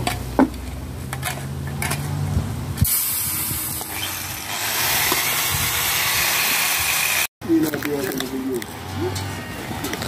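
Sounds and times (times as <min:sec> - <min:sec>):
rushing air hiss: 0:02.8 - 0:03.8.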